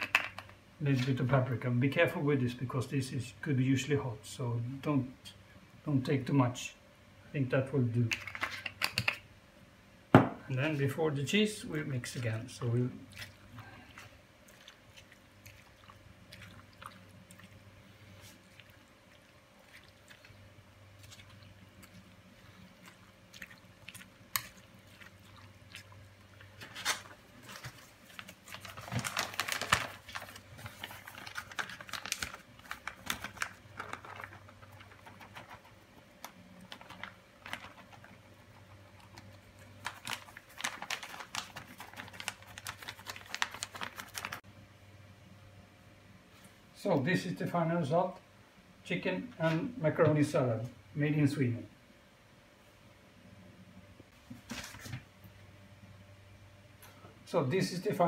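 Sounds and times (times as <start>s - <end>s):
salad squelching being stirred: 11.9s - 28.8s.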